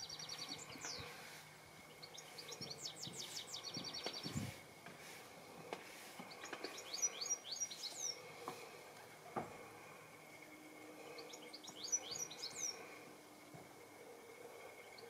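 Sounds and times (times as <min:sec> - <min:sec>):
songbird trilling: 0:11.2 - 0:12.9.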